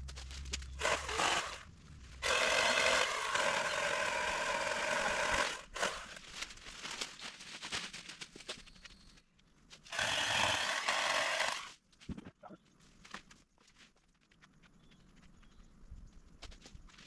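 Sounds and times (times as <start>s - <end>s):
pole saw motor revving: 0.8s - 6.1s, 9.9s - 11.7s.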